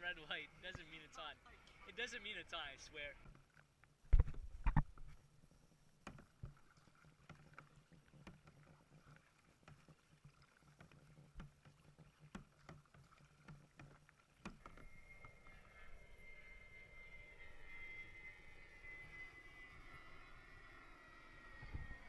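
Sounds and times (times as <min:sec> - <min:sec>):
faint kayak paddling: 0:00.0 - 0:22.0
low steady hum: 0:00.0 - 0:22.0
steady high whine: 0:14.5 - 0:22.0.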